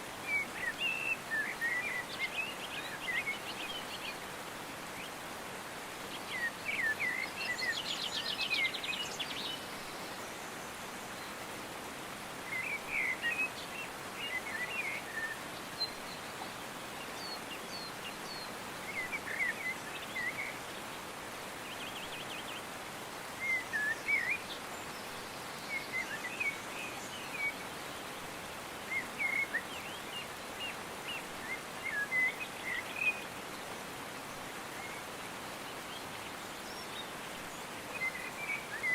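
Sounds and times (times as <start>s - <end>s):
songbirds chirping and whistling: 23.4s - 28.1s, 28.8s - 33.3s, 37.8s - 38.9s.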